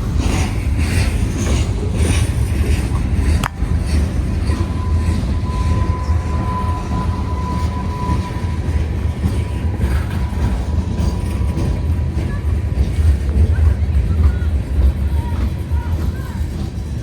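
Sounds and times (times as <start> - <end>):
train cars rumbling past: 0.0 - 17.0.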